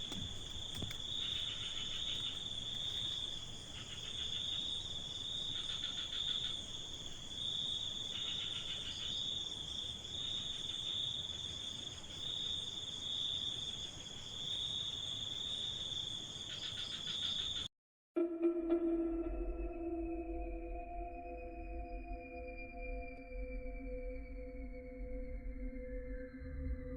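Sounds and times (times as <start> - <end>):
crickets trilling: 0.0 - 17.7
low rasping insect call: 0.0 - 17.7.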